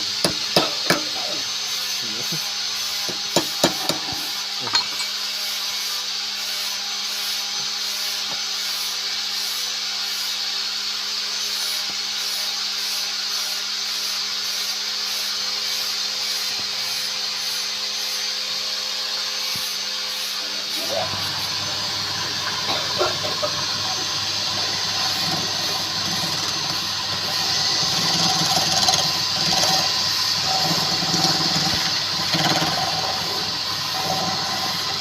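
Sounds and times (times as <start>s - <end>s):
lathe motor humming: 0.0s - 5.1s, 19.7s - 35.0s
hiss of spinning workpiece: 19.6s - 35.0s.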